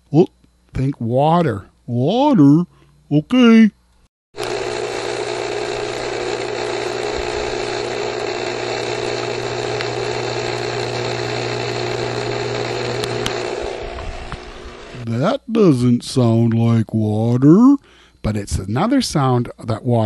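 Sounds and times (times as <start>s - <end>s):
pool pump running: 4.4s - 15.1s.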